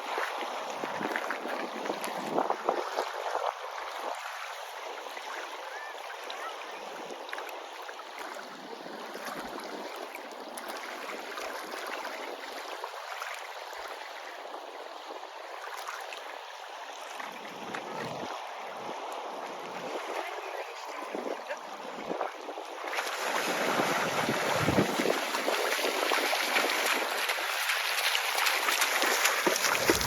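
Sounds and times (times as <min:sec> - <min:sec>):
small water splashes: 0:00.0 - 0:30.0
sea water sloshing: 0:06.8 - 0:30.0.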